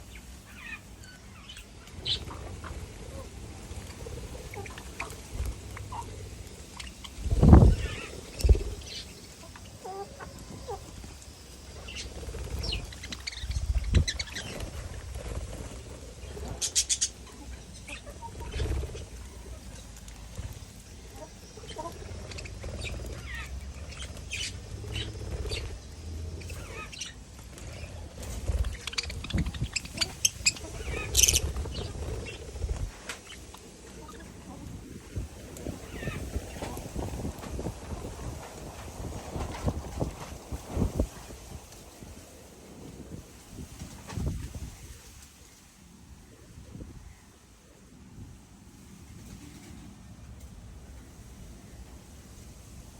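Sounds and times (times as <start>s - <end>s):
parrot chirps and squeaks: 28.6s - 31.5s.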